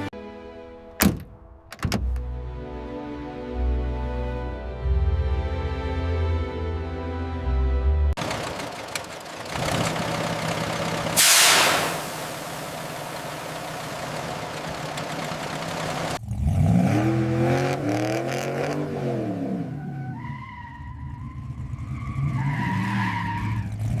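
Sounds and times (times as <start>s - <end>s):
car engine revving: 8.2s - 20.0s
steady hiss: 11.2s - 13.6s.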